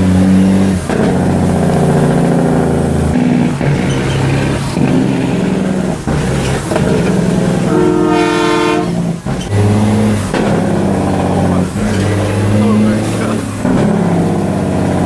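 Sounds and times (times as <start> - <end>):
diesel truck engines running: 0.0 - 15.0
truck air horn blast: 5.5 - 12.0.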